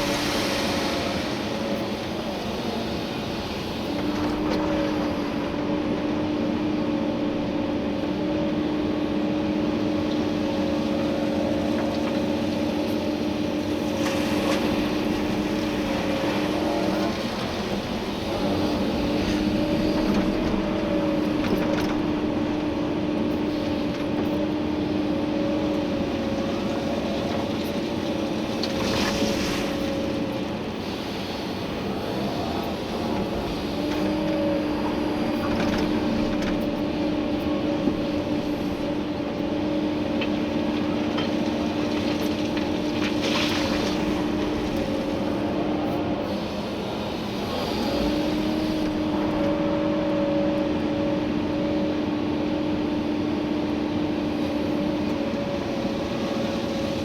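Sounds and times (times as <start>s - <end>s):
excavator engine and hydraulics: 0.0s - 57.0s.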